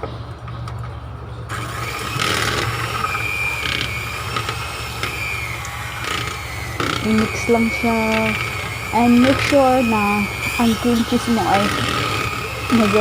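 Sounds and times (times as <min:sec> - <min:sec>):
beaters scraping bowl: 0:00.0 - 0:13.0
electric mixer running: 0:00.0 - 0:13.0.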